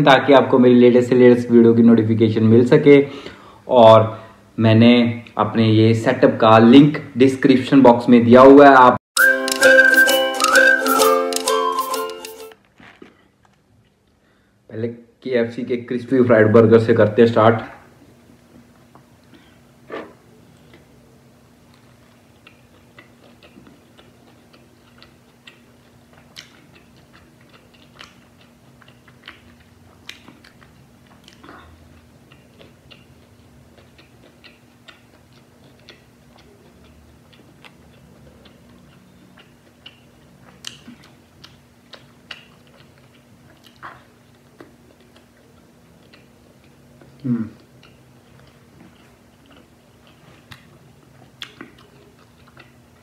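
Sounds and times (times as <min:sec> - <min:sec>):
chewing mouth sounds: 0:21.6 - 0:53.0.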